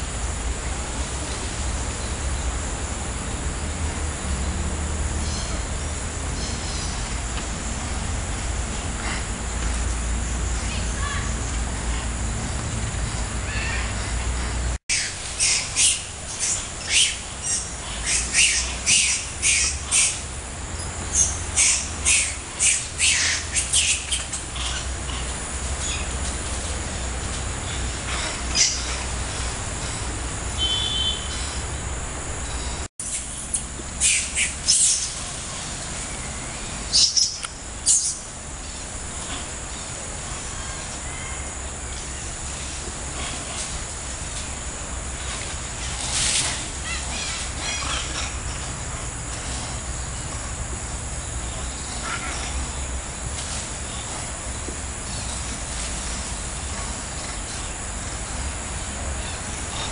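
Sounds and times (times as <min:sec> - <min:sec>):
steady high-pitched hum: 0:00.0 - 0:59.9
birds chirping: 0:05.2 - 0:07.4, 0:08.7 - 0:29.6, 0:30.6 - 0:42.9.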